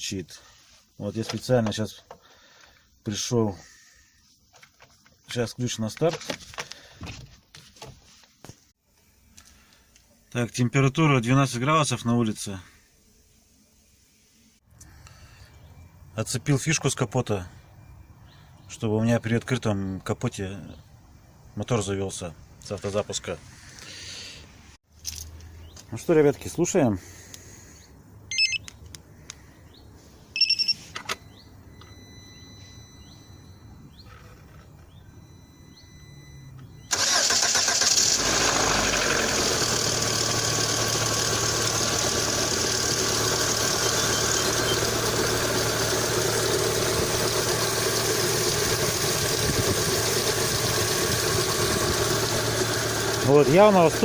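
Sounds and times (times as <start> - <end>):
electronic beep: 28.3 - 28.7, 30.4 - 36.9
car engine starting and idling: 36.1 - 54.0.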